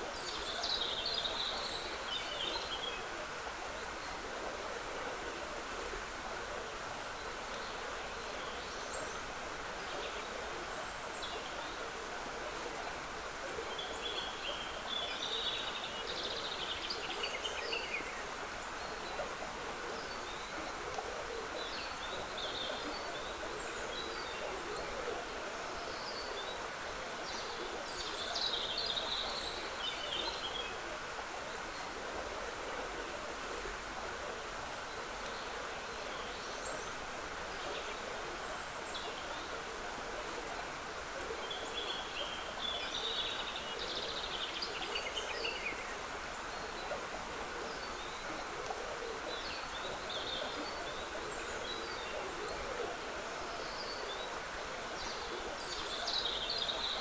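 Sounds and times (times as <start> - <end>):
stream trickling: 0.0 - 57.0
songbirds singing: 47.7 - 57.0.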